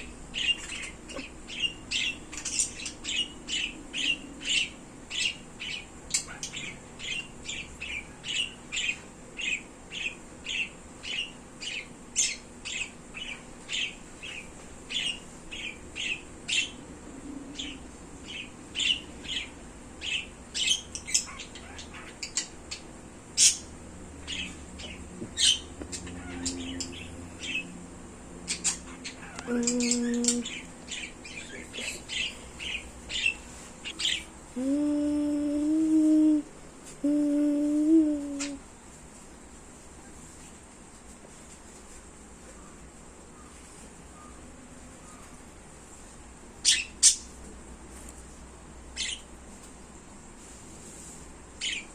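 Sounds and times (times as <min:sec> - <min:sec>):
pet birds chirping: 0:00.0 - 0:36.4, 0:46.6 - 0:47.5, 0:48.9 - 0:49.6, 0:51.6 - 0:51.9
person humming low note: 0:34.6 - 0:38.6.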